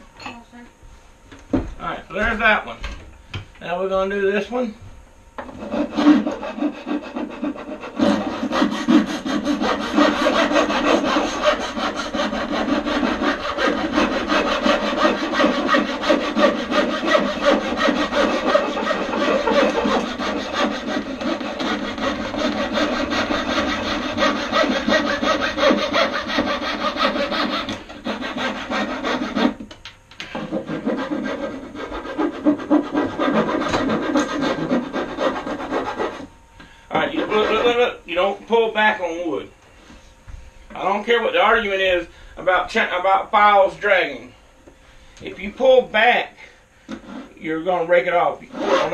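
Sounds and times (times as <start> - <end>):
hand tool cutting wood: 5.6 - 36.2, 48.5 - 48.9.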